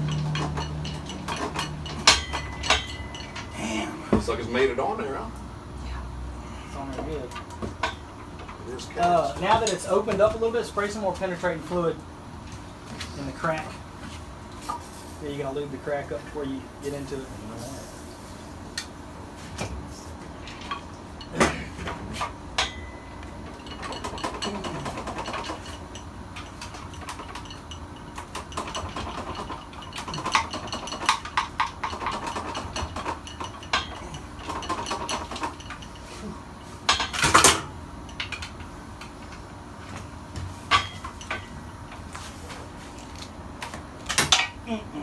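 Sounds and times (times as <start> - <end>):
hand tools clinking on metal: 0.0 - 3.7.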